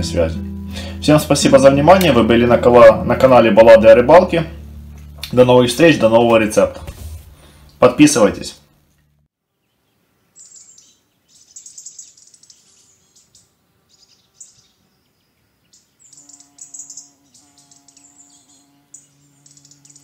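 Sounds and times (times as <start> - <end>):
songbirds chirping: 0.0 - 20.0
low steady hum of held tones: 1.9 - 6.4.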